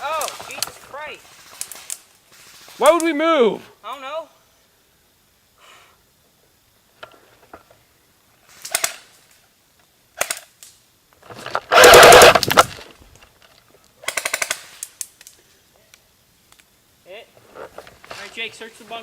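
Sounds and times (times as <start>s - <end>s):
airsoft guns firing full-auto: 8.6s - 9.1s, 11.7s - 12.7s, 14.0s - 14.8s.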